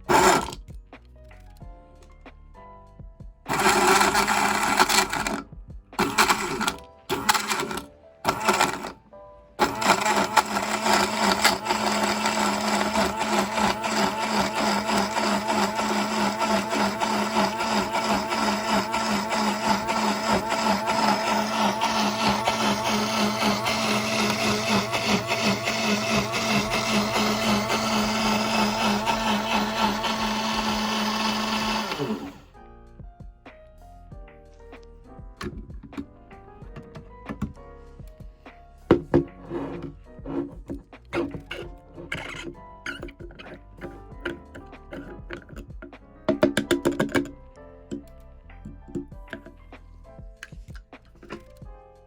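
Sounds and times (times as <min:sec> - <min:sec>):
blender motor running: 0:00.0 - 0:00.6, 0:03.5 - 0:05.4, 0:06.0 - 0:09.0, 0:09.6 - 0:32.5.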